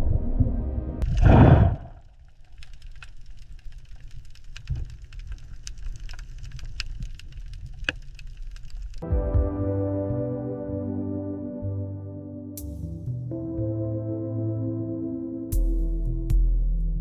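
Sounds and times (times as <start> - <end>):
low underwater rumble: 0.0 - 2.1
sharp clicks and crackles: 1.0 - 9.0
sustained music chord: 9.0 - 16.0.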